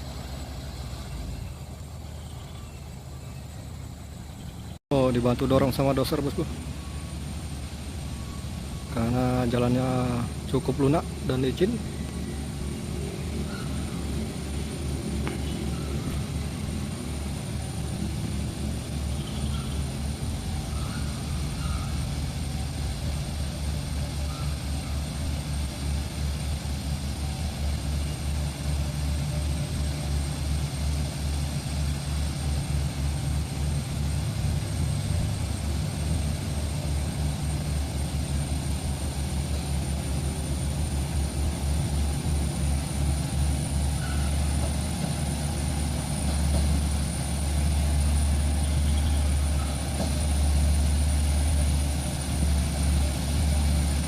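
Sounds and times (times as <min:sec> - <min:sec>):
heavy diesel engines running: 0:00.0 - 0:54.0
steady high whine: 0:00.0 - 0:54.0.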